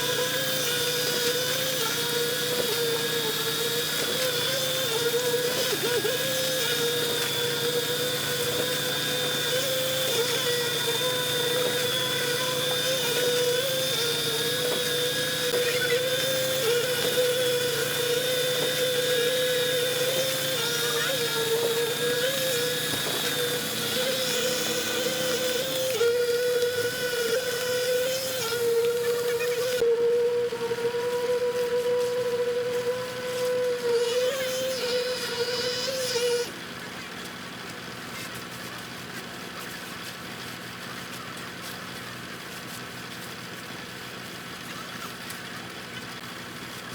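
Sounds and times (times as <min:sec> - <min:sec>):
motor whining: 0:00.0 - 0:37.3
noisy hum: 0:00.0 - 0:39.0.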